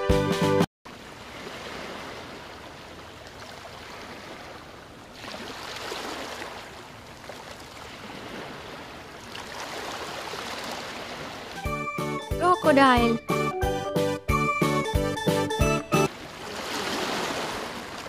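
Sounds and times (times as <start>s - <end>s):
flowing water rushing: 16.1s - 18.0s.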